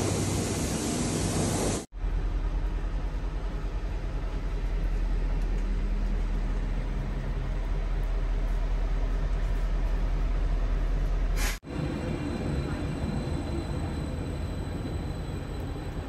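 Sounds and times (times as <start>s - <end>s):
train rushing hiss: 0.0s - 1.9s, 11.4s - 14.7s.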